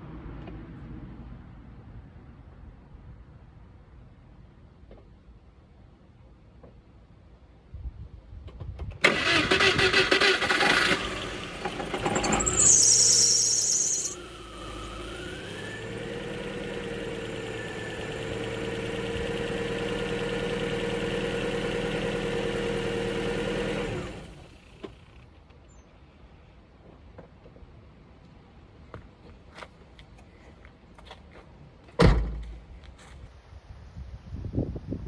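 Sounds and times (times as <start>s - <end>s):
car engine cranking: 9.0s - 25.3s
car engine revving and idling: 10.4s - 25.1s.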